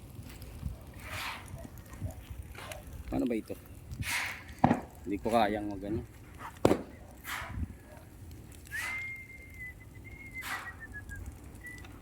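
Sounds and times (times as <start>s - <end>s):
hissing crackles of fire: 0.0s - 12.0s
sharp pop of burning grass: 4.0s - 5.0s, 6.5s - 7.7s
thin high whistle: 8.7s - 11.9s.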